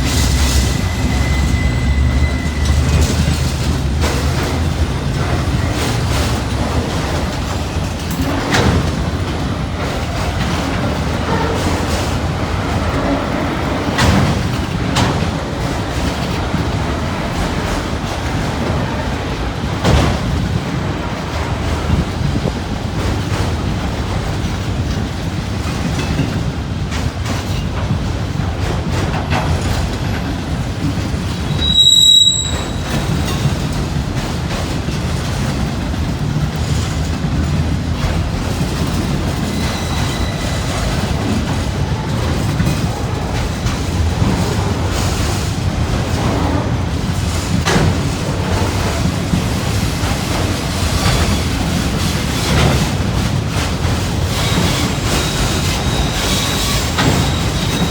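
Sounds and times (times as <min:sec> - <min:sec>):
high wheel squeal: 0:00.0 - 0:06.1, 0:31.4 - 0:33.5, 0:39.4 - 0:42.1, 0:54.3 - 0:57.9
freight train wheels rumbling on rail: 0:00.0 - 0:57.9.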